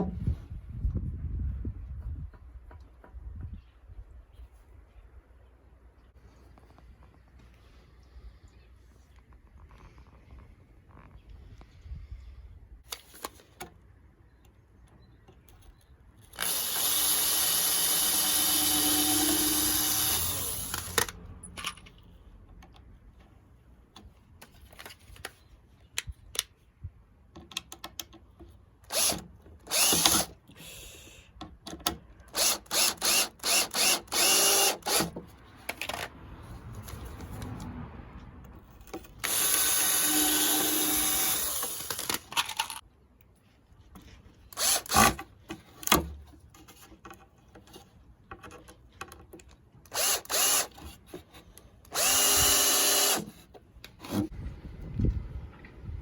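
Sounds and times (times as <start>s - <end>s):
power tool motor running: 16.4s - 21.1s, 28.9s - 30.9s, 32.3s - 35.1s, 39.2s - 42.2s, 44.6s - 45.2s, 49.9s - 50.8s, 51.9s - 53.3s.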